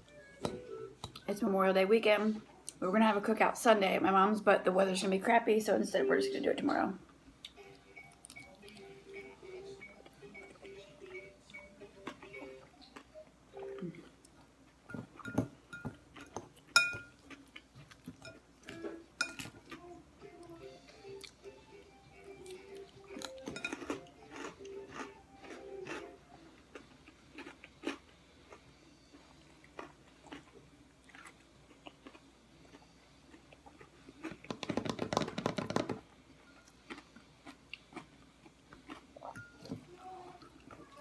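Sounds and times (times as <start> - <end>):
person chewing crunchy food: 10.0 - 21.5, 22.3 - 35.9, 36.5 - 41.0.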